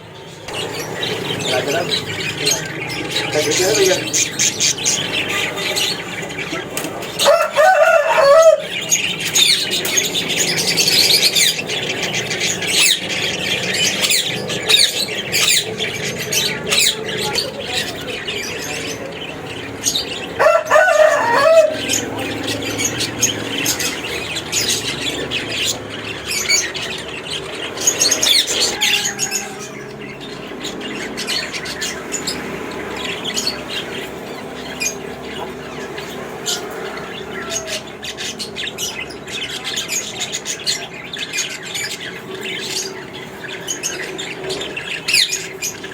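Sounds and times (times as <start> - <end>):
loud squawking calls: 0.0 - 45.9
cockatiels chirping and whistling: 0.5 - 19.1.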